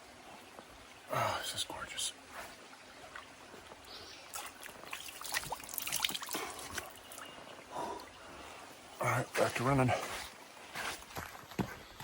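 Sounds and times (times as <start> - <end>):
water trickling over rocks: 0.0 - 10.9
small splashes and clicks: 3.0 - 7.3.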